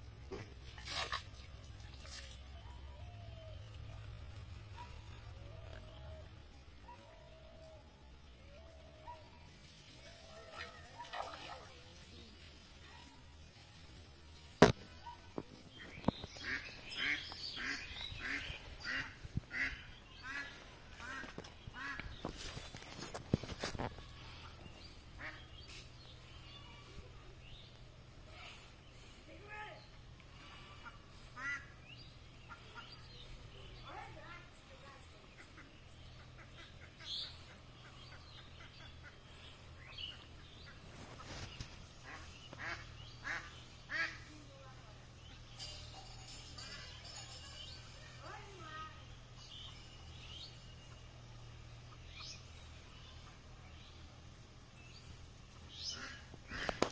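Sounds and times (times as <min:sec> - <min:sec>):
small birds chirping: 0:01.3 - 0:56.9
ducks quacking: 0:15.8 - 0:22.3, 0:24.5 - 0:25.8, 0:30.4 - 0:31.8, 0:35.3 - 0:44.3, 0:55.7 - 0:56.9.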